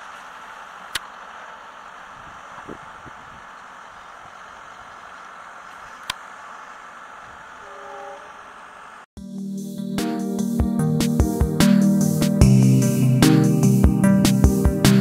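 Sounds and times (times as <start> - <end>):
distant passenger train running: 0.0 - 9.1
faint horn-like tone: 7.6 - 8.6
electronic music: 9.2 - 15.0.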